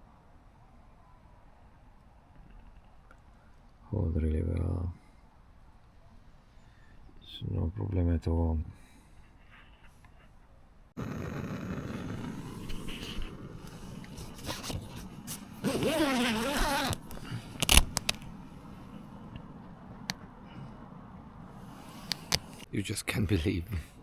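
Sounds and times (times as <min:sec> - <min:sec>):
zip pulled: 0:11.0 - 0:19.1, 0:21.6 - 0:22.7
tent rustling and handling: 0:11.8 - 0:20.1.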